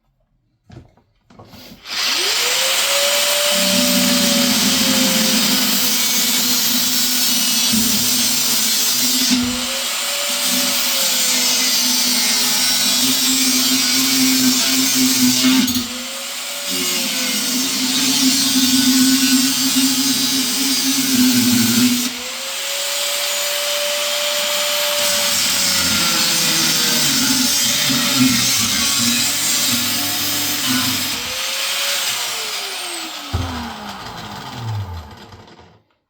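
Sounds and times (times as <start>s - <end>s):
cutting disc whining: 1.9s - 7.1s, 25.0s - 35.8s.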